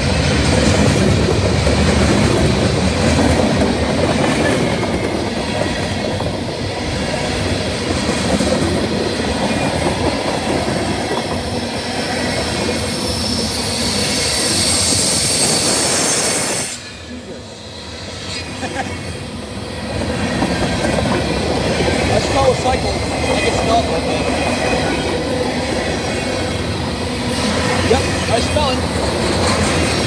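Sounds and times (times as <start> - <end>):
train wheels running over rails: 0.0 - 30.0
high wheel squeal: 11.6 - 18.7.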